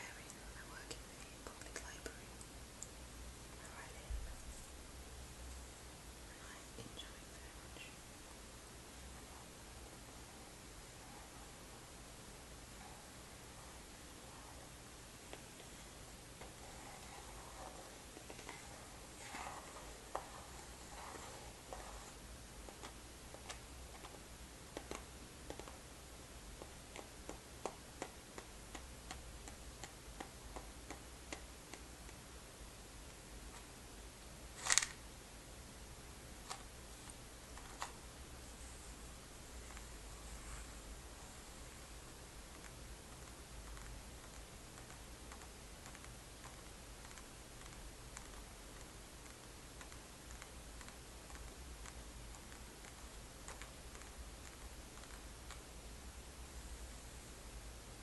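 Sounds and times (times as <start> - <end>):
steady hiss: 0.0 - 58.0.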